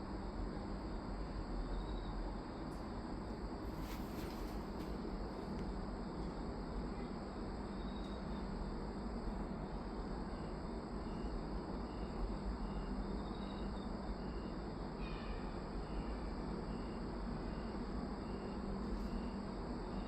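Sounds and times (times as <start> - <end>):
frogs calling: 11.0 - 20.0.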